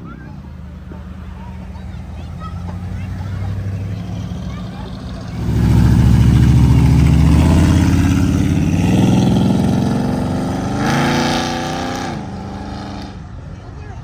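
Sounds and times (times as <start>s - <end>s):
car engine rumbling and revving: 0.0s - 14.0s.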